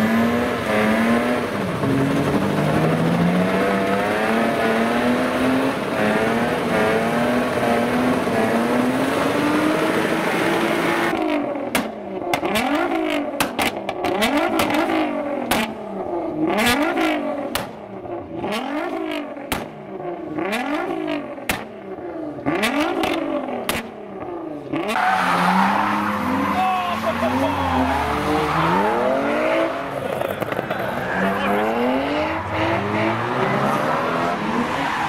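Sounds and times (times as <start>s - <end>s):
car engine revving in blips: 0.0s - 26.5s, 27.3s - 35.0s
car engine at high revs: 0.0s - 35.0s
exhaust cracks and pops: 30.0s - 31.0s.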